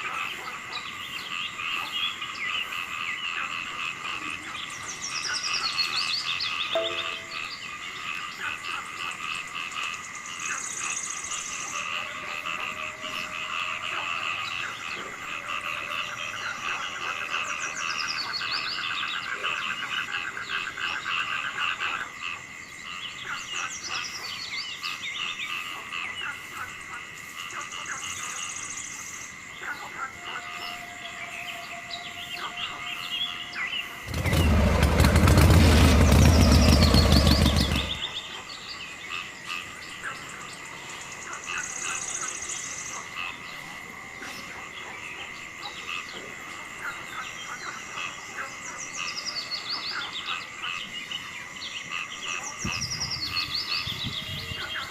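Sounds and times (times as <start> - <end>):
birds calling: 0.0 - 8.5, 9.7 - 43.6
frogs chirping: 0.0 - 54.9
insects chirring: 0.0 - 54.9
loud rough noise: 34.0 - 38.1.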